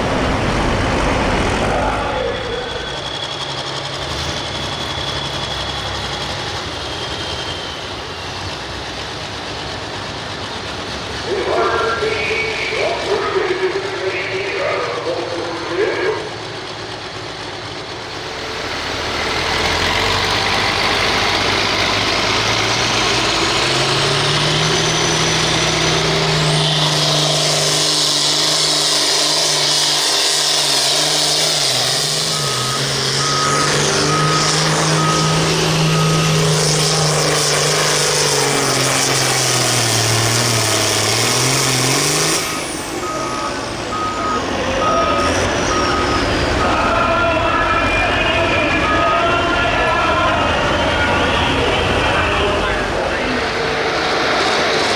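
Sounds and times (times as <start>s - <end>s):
diesel tractor engine: 0.0s - 54.9s
electronic beep: 42.5s - 49.5s.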